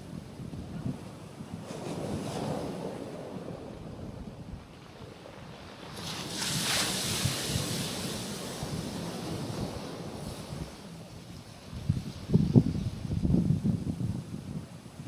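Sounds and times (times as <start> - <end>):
wind on microphone: 0.0 - 15.0
waves washing onto rocks: 4.9 - 13.3.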